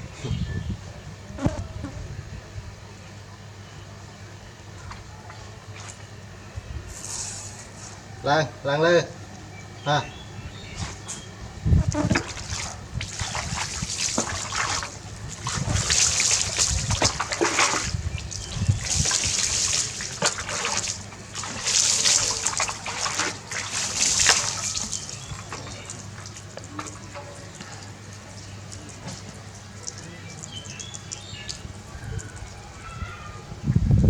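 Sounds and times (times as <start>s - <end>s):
water splashing and pouring: 12.0s - 32.6s.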